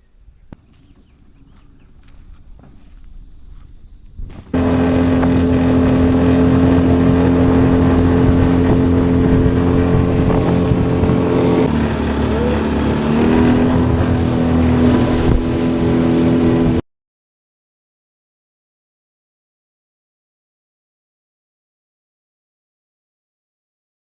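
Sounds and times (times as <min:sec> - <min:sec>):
engine running: 0:00.5 - 0:16.8.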